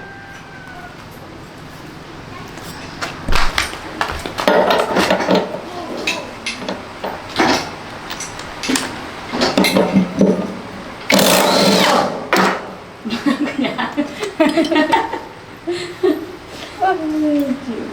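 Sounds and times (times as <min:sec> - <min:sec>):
tools knocking on metal parts: 0:02.7 - 0:11.4, 0:14.3 - 0:15.1.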